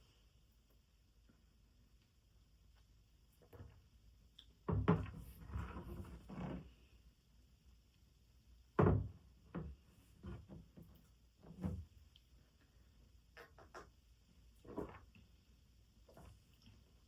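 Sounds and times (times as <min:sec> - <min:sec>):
objects thumping and knocking: 0:08.8 - 0:11.9.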